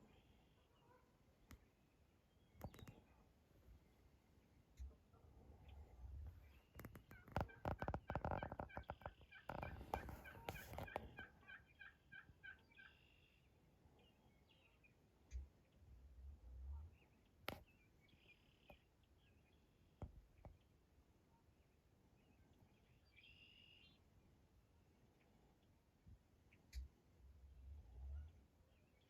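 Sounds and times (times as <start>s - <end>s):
turkey gobbling: 7.0s - 13.2s.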